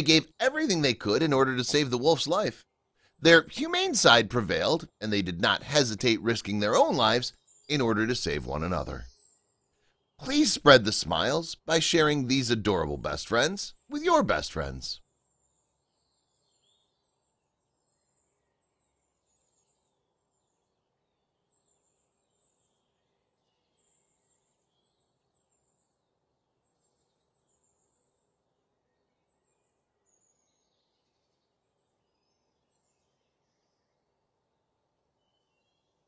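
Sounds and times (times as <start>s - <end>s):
faint bird chirps: 15.4s - 36.0s.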